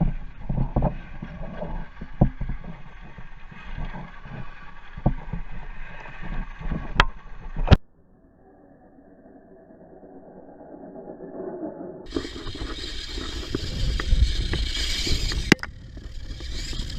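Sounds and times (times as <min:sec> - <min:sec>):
rc truck rumble: 0:12.1 - 0:16.9.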